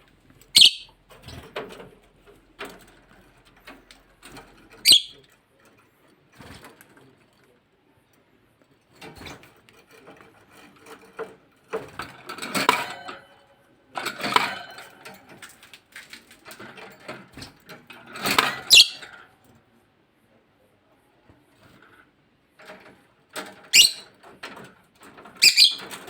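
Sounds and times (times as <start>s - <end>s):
parrotlets clicking and rattling: 0.1s - 7.3s, 9.0s - 13.3s, 14.0s - 19.3s, 22.6s - 26.0s
high bird chirp: 0.5s - 0.9s, 4.8s - 5.2s, 18.7s - 19.0s, 23.8s - 24.0s, 25.4s - 25.8s.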